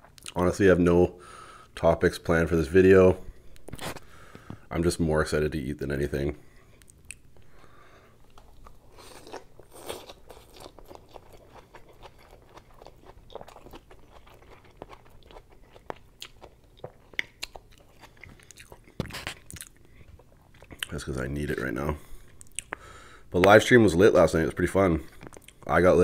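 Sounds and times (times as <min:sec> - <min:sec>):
mouth chewing and smacking: 0:00.0 - 0:00.4, 0:06.8 - 0:07.5, 0:08.2 - 0:21.6, 0:22.2 - 0:23.6, 0:25.1 - 0:25.7.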